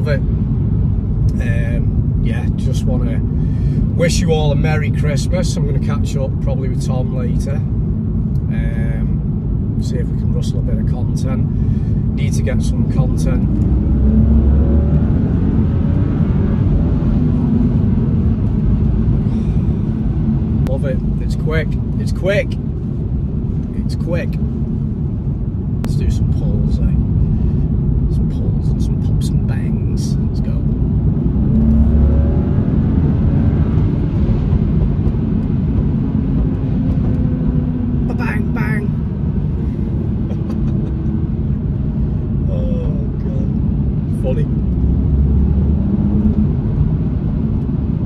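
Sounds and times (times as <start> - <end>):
car engine and tyre rumble: 0.0 - 48.0
road noise: 0.0 - 48.0.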